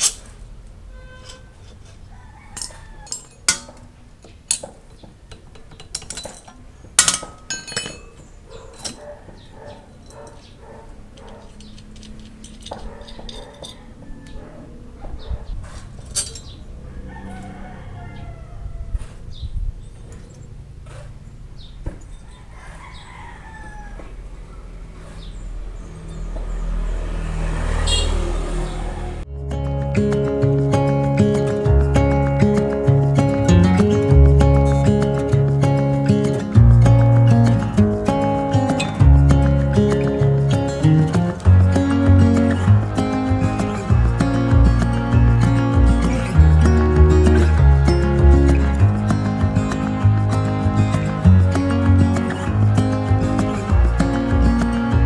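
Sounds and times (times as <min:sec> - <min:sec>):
metal tools clinking and knocking: 0:00.0 - 0:17.7, 0:19.0 - 0:26.6
motor engine humming: 0:08.3 - 0:29.3
music: 0:29.3 - 0:55.0.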